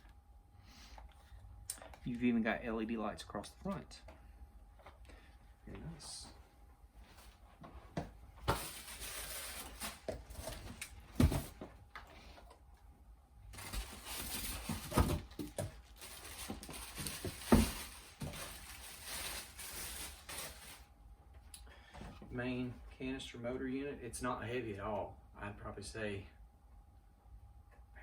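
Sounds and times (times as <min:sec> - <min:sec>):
packaging rustling and crinkling: 0:07.1 - 0:12.1, 0:13.5 - 0:20.9.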